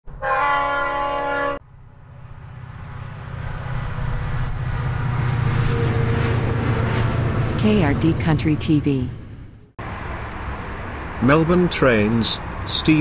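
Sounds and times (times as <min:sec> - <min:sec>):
train horn: 0:00.1 - 0:01.6, 0:04.0 - 0:07.6
approaching train rumble: 0:00.1 - 0:13.0.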